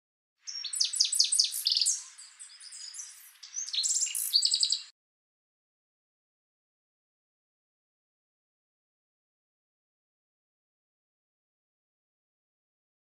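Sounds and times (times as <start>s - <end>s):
songbird chirping and trilling: 0.4s - 4.9s.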